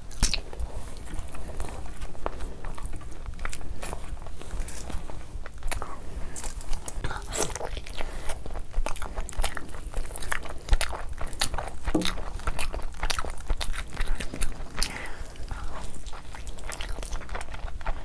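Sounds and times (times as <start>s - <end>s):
person chewing food: 0.0s - 18.0s
wet mouth clicks: 9.4s - 18.0s.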